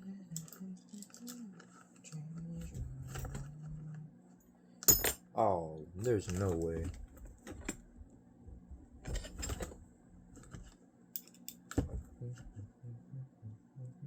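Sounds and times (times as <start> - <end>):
small parts and tools clicking: 0.3 - 2.2, 10.4 - 11.9.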